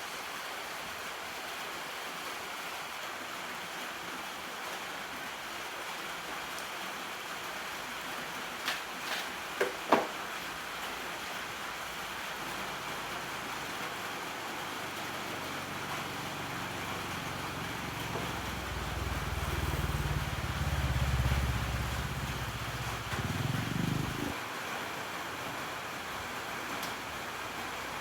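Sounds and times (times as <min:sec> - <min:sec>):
low engine rumble: 0:14.7 - 0:24.4.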